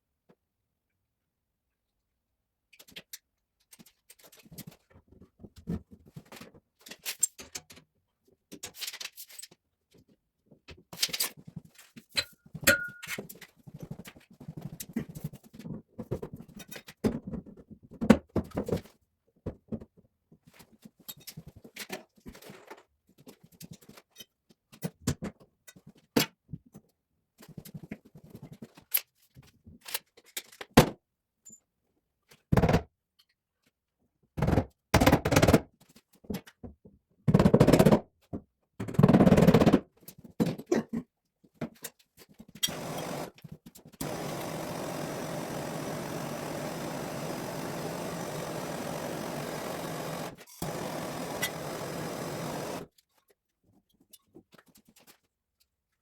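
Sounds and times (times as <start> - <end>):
knocks and clatters of plumbing work: 10.5 - 26.8, 34.4 - 52.9.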